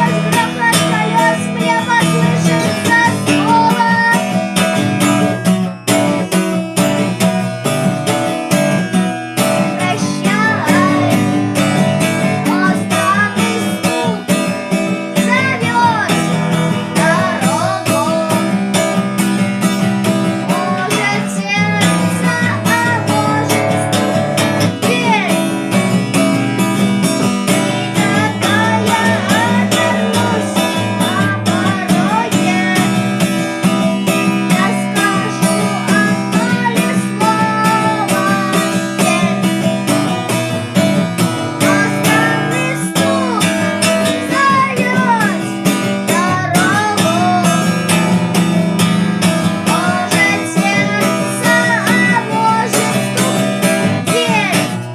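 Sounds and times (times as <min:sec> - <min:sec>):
acoustic guitar strumming: 0:00.0 - 0:54.9
gliding guitar melody: 0:00.0 - 0:54.9.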